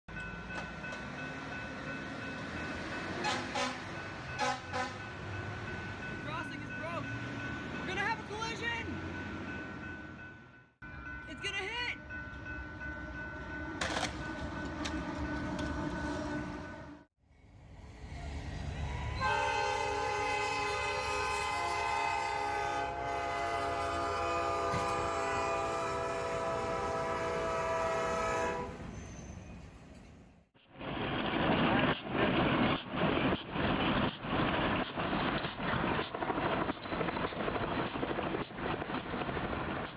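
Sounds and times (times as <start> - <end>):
train rumbling: 0.1 - 11.3, 12.0 - 39.9
short train horn blasts: 3.2 - 5.1, 19.2 - 28.8.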